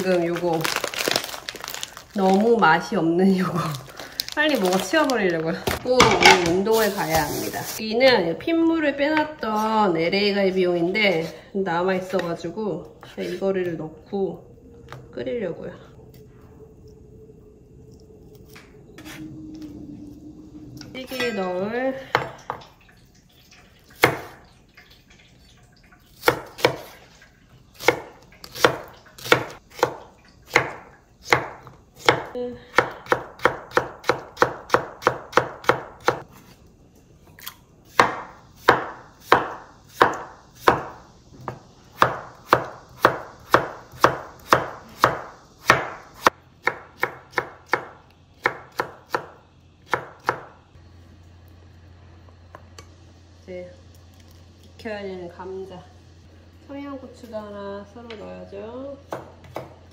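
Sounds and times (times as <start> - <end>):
knife chopping on cutting board: 37.9 - 40.9, 59.1 - 59.8.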